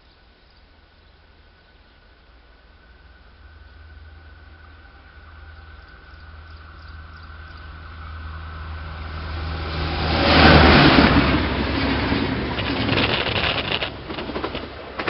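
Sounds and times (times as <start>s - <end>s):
train passing at speed: 1.3s - 15.0s
wheels clicking on rails: 10.8s - 15.0s.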